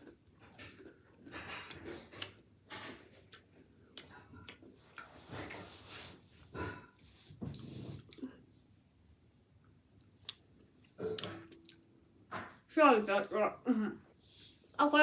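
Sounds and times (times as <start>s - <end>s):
chewing crunchy cookie: 0.0s - 8.4s, 9.6s - 11.8s.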